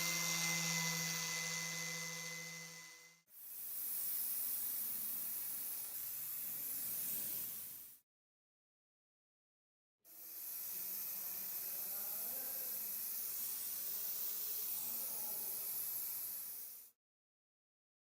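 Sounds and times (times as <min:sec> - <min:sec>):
spray hiss: 0:03.4 - 0:08.0, 0:10.2 - 0:17.0.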